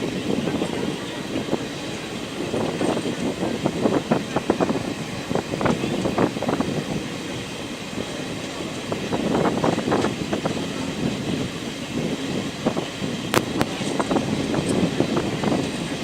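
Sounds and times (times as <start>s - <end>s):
train coach rumbling and rattling: 0.0s - 16.0s.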